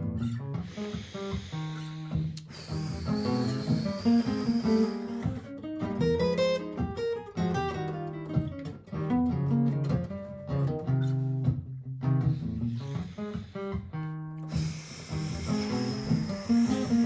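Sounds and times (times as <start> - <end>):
acoustic guitar plucked notes: 4.0 - 12.3.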